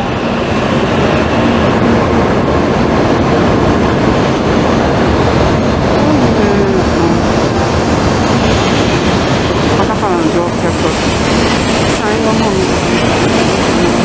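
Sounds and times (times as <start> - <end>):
train wheels rumbling: 0.0 - 14.0.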